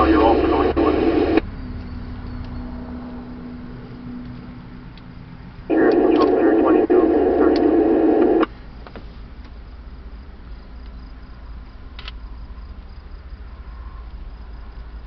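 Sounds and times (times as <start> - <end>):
crickets chirping: 0.0 - 15.0
low steady hum: 0.0 - 15.0
faint clicks: 5.7 - 8.6.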